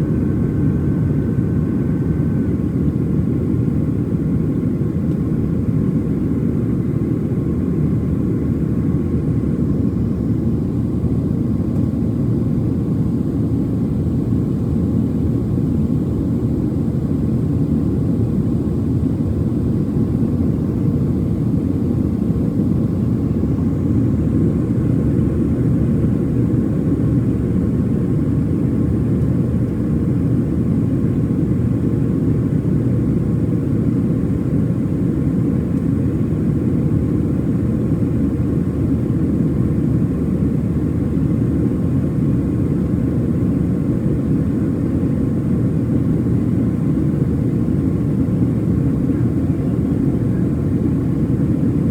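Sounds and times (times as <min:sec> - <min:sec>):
jet engines rumbling: 0:00.0 - 0:06.5.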